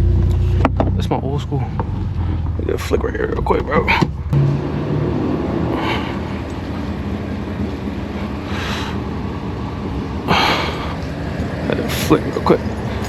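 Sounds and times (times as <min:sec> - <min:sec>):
car engine at low revs: 0:00.0 - 0:13.0.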